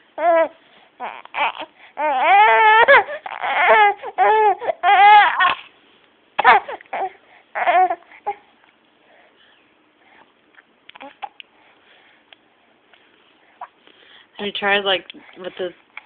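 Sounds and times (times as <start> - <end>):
baby crying: 0.2 - 5.7, 6.4 - 8.4.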